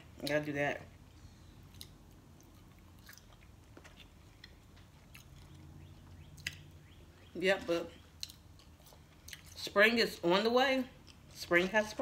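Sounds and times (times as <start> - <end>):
person chewing food: 0.9 - 7.0, 8.0 - 9.6, 11.0 - 11.4.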